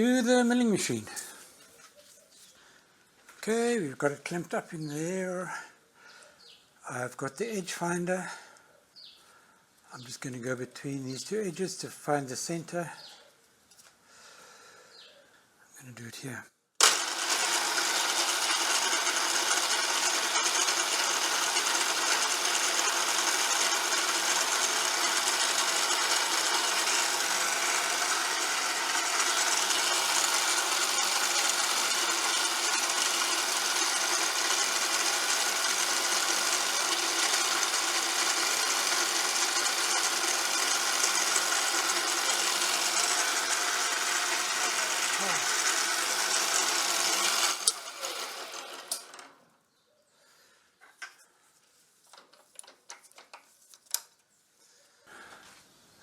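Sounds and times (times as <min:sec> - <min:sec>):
milling machine whine: 0:16.8 - 0:49.2.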